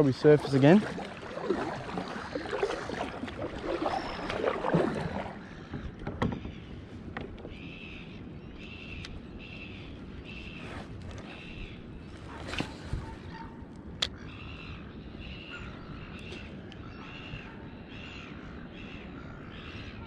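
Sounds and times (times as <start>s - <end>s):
paddle splashing in water: 0.0s - 8.1s, 12.2s - 13.3s.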